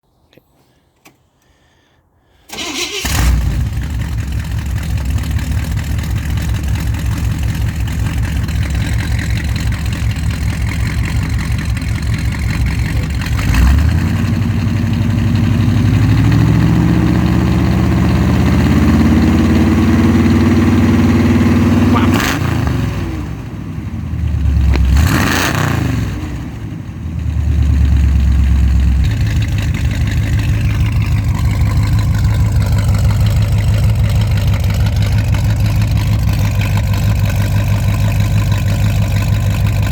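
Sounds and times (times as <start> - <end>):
car engine starting and revving: 2.5 - 39.9.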